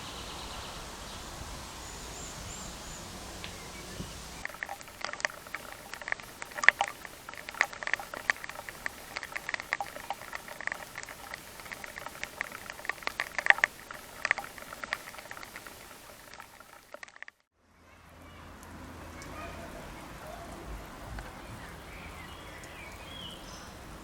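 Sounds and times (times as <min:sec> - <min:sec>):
faint hiss: 0:00.0 - 0:17.4
sprinkler water pattering down: 0:04.4 - 0:17.5.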